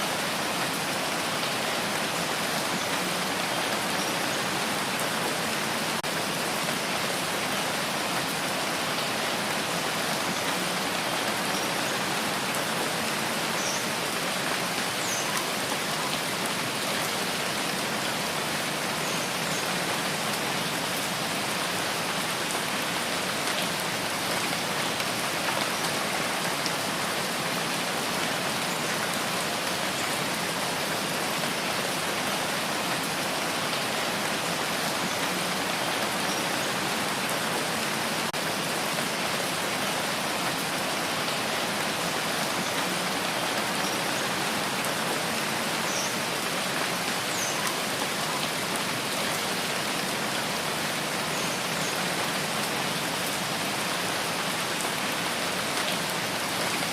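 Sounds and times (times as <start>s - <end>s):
steady rain hiss: 0.0s - 56.9s.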